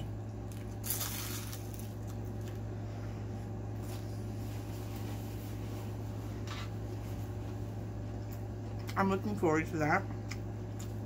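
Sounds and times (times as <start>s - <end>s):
low electrical hum: 0.0s - 11.0s
crunchy bite: 0.4s - 2.6s.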